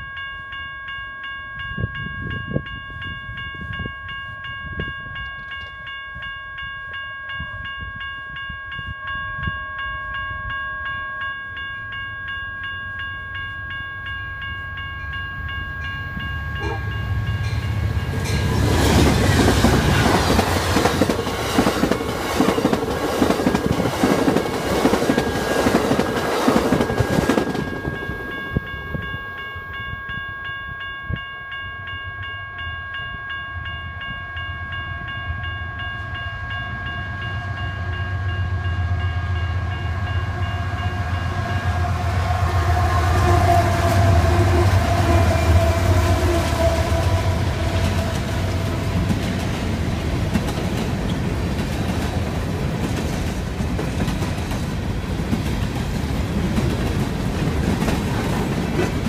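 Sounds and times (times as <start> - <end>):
train cars rushing past: 15.0 - 29.8, 35.1 - 59.0
train horn chord: 34.2 - 49.2
diesel locomotive rumble: 37.4 - 59.0.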